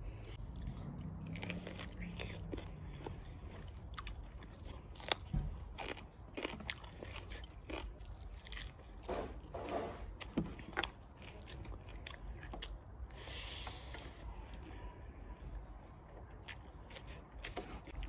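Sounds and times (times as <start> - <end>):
person chewing food: 0.0 - 18.0
crunchy bites: 0.6 - 12.8.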